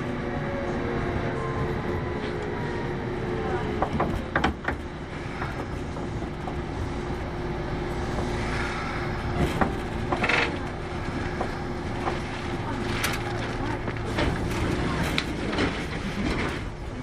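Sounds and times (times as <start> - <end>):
electric train rumbling: 0.0 - 17.0
wheels clicking over rail joints: 9.3 - 17.0.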